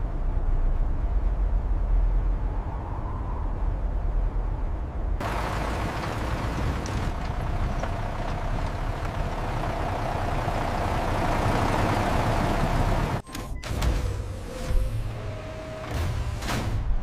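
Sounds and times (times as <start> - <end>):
machinery rumble: 5.2 - 13.2.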